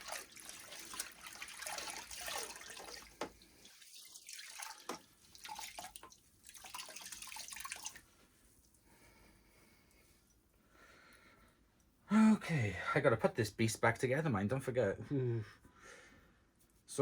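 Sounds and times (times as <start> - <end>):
water splashing in a bucket: 0.0 - 8.1.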